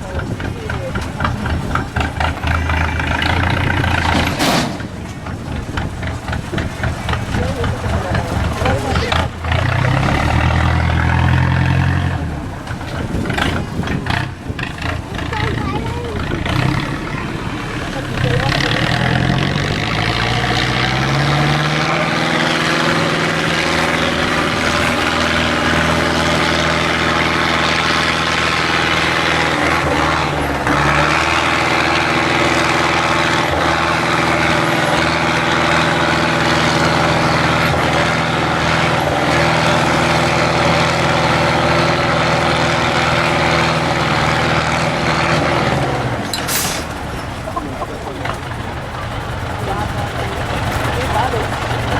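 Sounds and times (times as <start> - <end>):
diesel truck engine running: 0.0 - 51.9.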